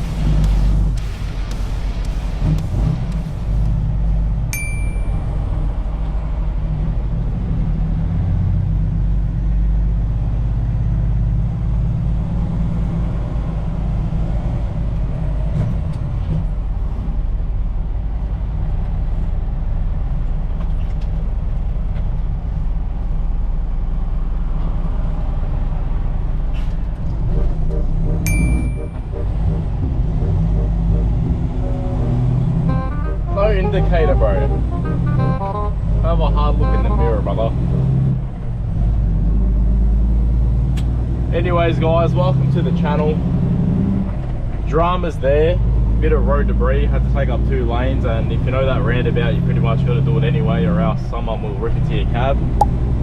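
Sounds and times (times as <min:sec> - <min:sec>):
truck engine and road rumble: 0:00.0 - 0:53.0
short electronic beep: 0:04.6 - 0:05.4, 0:28.3 - 0:29.7, 0:32.7 - 0:35.9.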